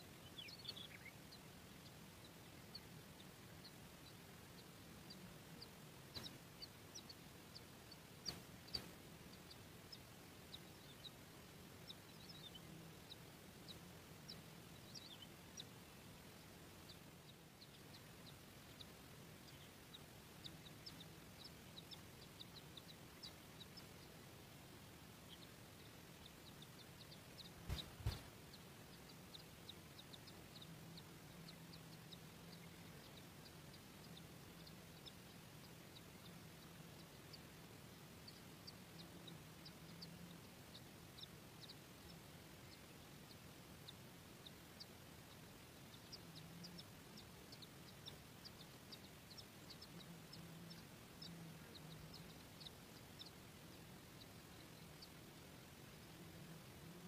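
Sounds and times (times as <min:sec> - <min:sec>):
faint high bird chirps: 0:00.0 - 0:57.0
low steady hum: 0:00.0 - 0:57.0.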